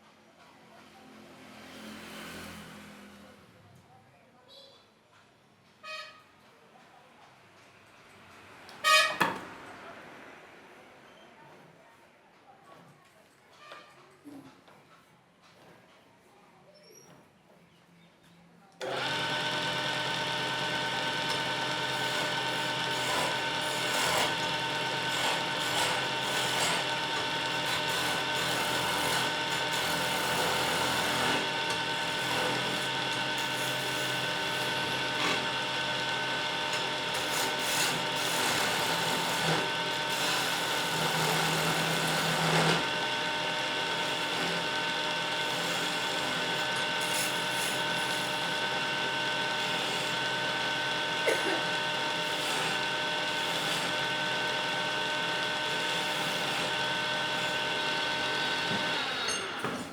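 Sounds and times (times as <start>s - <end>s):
wood lathe motor hum: 18.8s - 59.8s
turning tool scraping wood: 18.8s - 59.9s.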